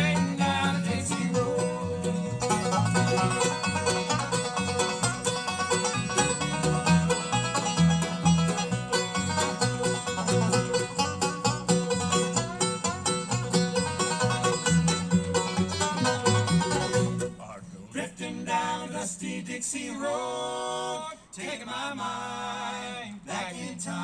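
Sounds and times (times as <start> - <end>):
bass line: 0.0 - 17.4
guitar: 0.0 - 17.5
banjo picking: 0.0 - 17.6.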